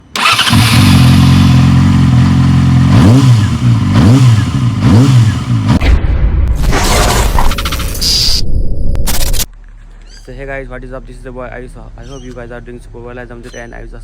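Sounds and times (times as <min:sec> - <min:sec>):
motorcycle engine idling and revving: 0:00.0 - 0:05.8.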